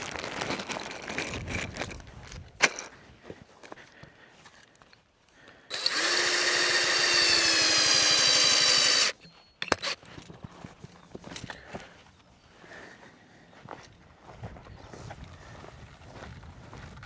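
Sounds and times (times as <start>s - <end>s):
electric power tool motor: 5.7s - 10.0s.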